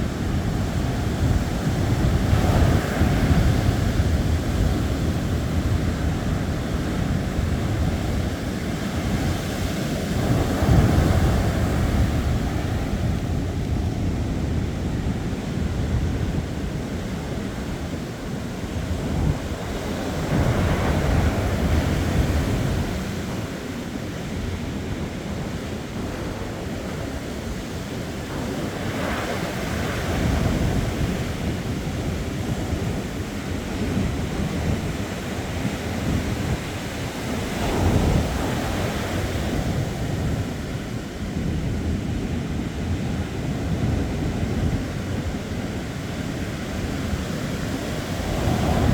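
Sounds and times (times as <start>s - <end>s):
ocean surf washing: 0.0s - 48.9s
wind buffeting microphone: 0.0s - 48.9s.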